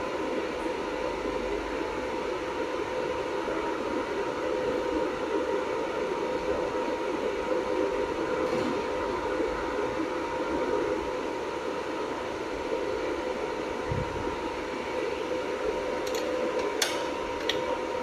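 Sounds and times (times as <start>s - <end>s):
cooling fan whirring hum: 0.0s - 18.0s.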